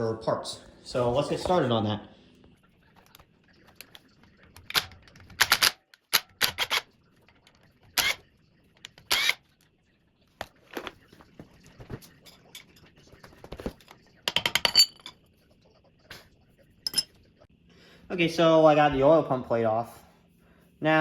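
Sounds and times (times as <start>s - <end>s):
metal tools clicking and clanking: 12.0s - 13.0s, 14.3s - 15.2s, 16.8s - 17.2s.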